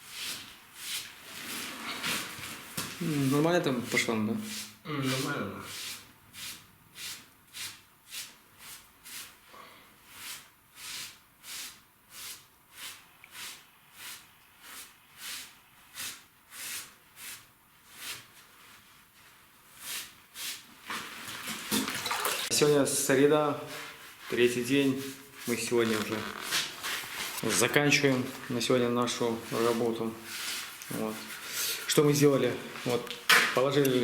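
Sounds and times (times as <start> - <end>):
hand scrubbing brickwork: 0.0 - 9.4.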